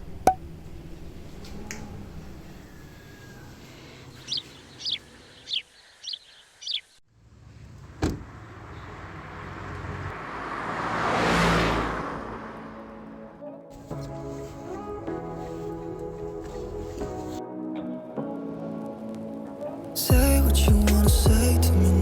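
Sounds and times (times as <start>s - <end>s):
bird chirping: 1.6s - 7.0s.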